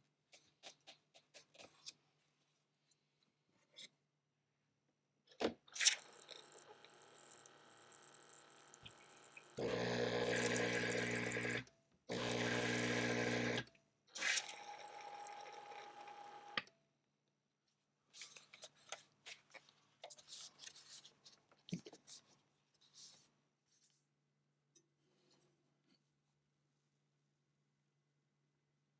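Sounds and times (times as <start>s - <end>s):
espresso machine pump humming: 6.0s - 13.6s, 14.3s - 16.6s.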